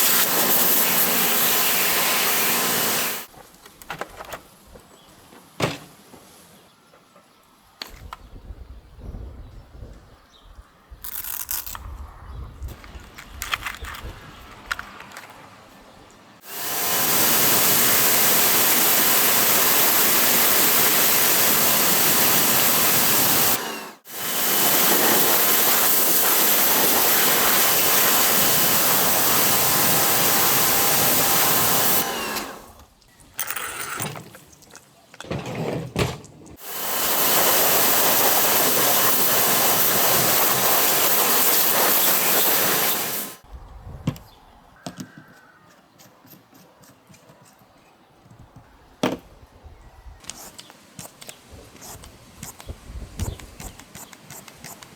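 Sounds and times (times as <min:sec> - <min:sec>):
pressure washer spraying: 0:00.0 - 0:03.3, 0:16.4 - 0:32.8, 0:36.6 - 0:43.4.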